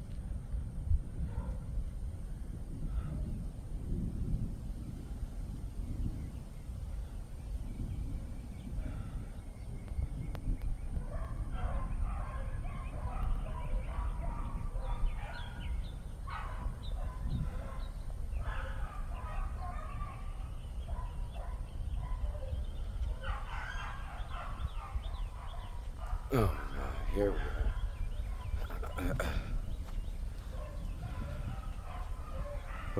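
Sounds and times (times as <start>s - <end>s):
wind on microphone: 0.0s - 32.9s
birds chirping and clucking: 22.9s - 32.9s.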